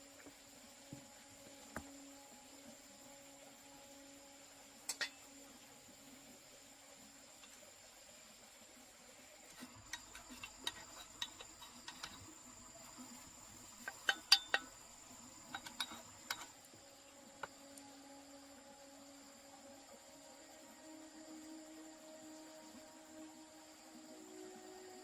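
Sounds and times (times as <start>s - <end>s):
faint high-pitched whine: 0.0s - 25.0s
sharp clicks and knocks: 15.5s - 16.5s.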